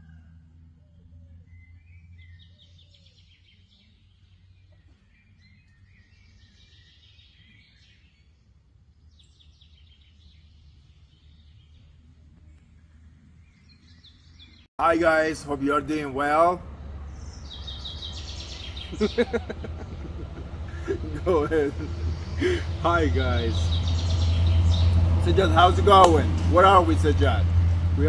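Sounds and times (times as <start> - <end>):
small birds chirping and trilling: 1.6 - 15.3, 15.9 - 28.0
low steady hum: 14.8 - 28.0.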